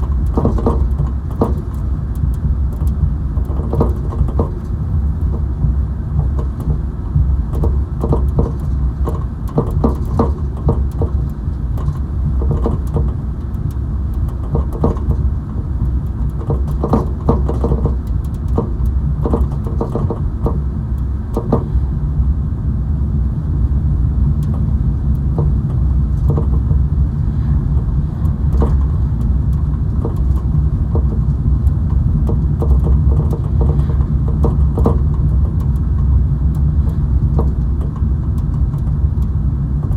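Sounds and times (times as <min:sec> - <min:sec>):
short clicks and knocks: 0:00.0 - 0:05.6, 0:06.2 - 0:21.9, 0:27.8 - 0:39.9
car cabin road rumble: 0:00.0 - 0:39.9.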